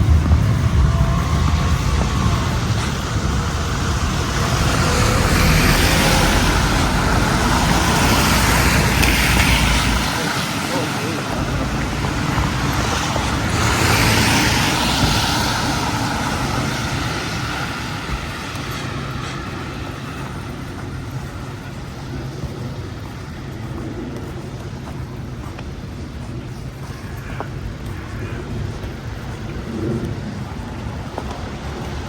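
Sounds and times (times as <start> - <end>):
vehicle passing: 0.0 - 24.5
traffic hum: 0.0 - 32.0.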